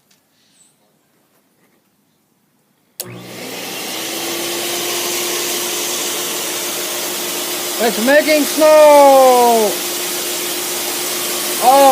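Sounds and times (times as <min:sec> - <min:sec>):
snow machine blower running: 0:03.0 - 0:11.9.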